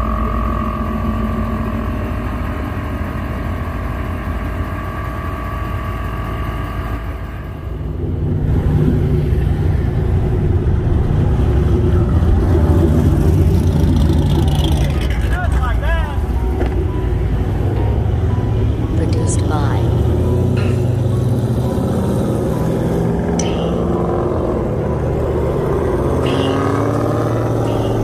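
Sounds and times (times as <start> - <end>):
car engine running low: 0.0 - 28.0
engine drone inside moving car: 0.0 - 28.0.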